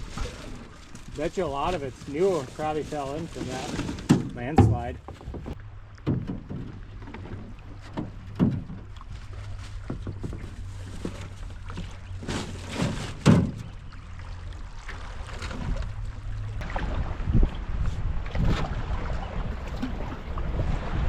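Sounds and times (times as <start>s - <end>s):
paddle strokes and splashes: 0.0s - 21.0s
hollow thunks on canoe: 3.5s - 13.8s.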